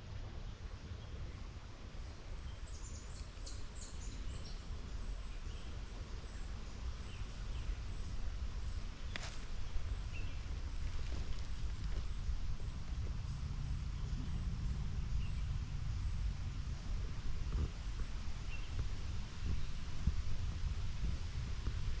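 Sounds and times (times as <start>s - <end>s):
steady low rumble: 0.0s - 22.0s
small bird chirping: 2.4s - 6.4s.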